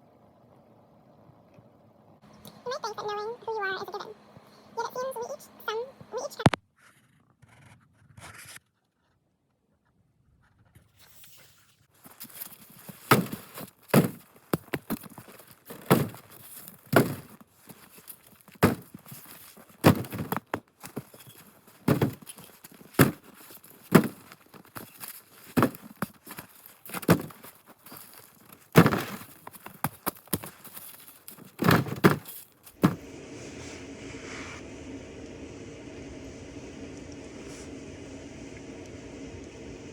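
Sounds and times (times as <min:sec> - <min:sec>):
crunching footsteps: 0:12.0 - 0:33.1.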